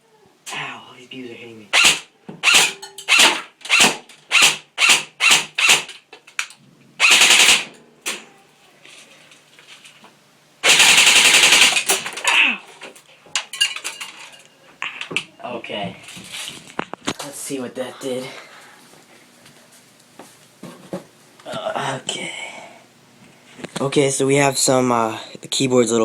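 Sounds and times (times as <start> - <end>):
airsoft gun firing: 1.7 - 5.9, 7.0 - 8.2, 10.6 - 12.1.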